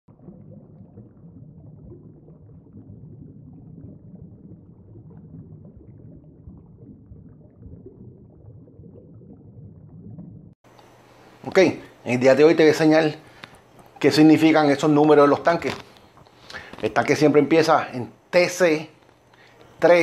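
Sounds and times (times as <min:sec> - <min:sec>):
underwater bubbling: 0:00.1 - 0:10.6, 0:13.2 - 0:15.2.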